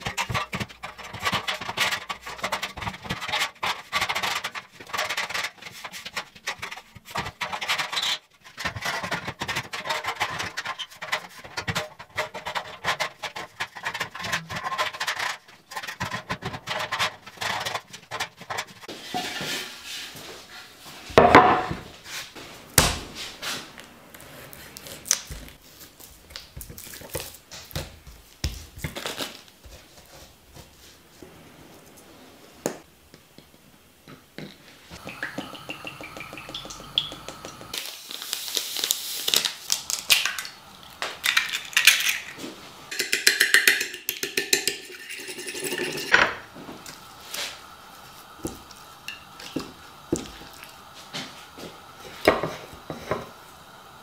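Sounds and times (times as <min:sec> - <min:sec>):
knocking and scraping of hand work: 0:00.0 - 0:23.6.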